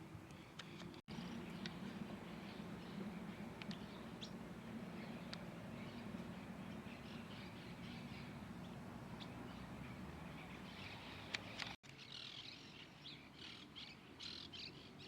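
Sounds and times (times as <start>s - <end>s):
small birds chirping: 0.2s - 15.0s
steady low hum: 1.1s - 11.8s.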